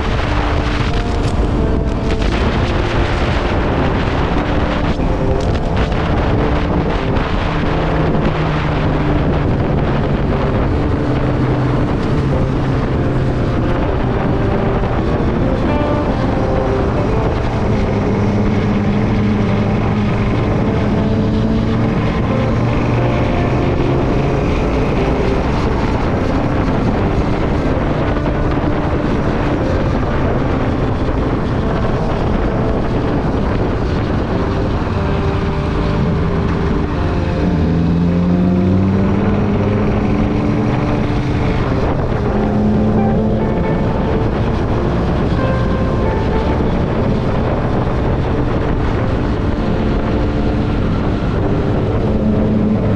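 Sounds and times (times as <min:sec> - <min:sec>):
motorcycle engine running: 0:00.0 - 0:52.9
wind rushing over microphone: 0:00.0 - 0:52.9.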